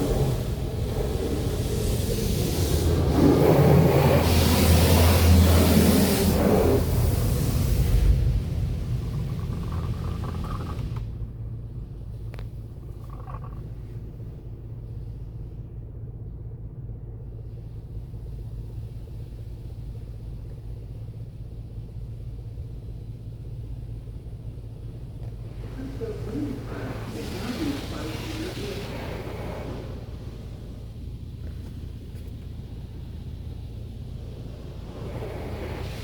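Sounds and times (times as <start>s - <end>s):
car wash machine rumble: 0.0s - 36.0s.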